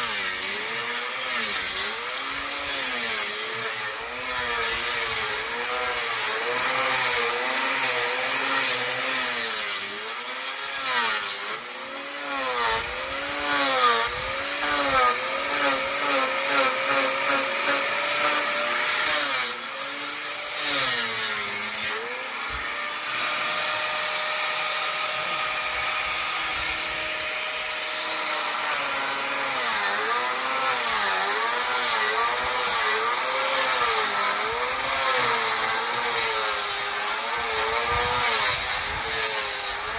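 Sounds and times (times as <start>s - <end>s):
power sander grinding paint: 0.0s - 39.9s.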